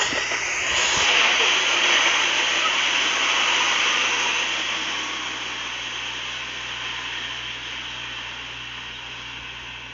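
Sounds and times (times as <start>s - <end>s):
train wheels on rail: 0.0s - 6.2s
train locomotive passing: 0.0s - 7.4s.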